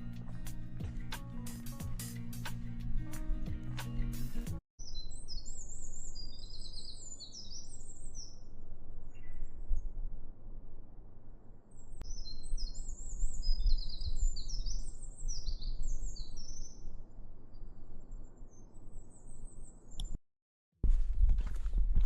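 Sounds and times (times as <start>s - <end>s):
small songbird singing: 4.8s - 8.5s, 11.7s - 16.9s.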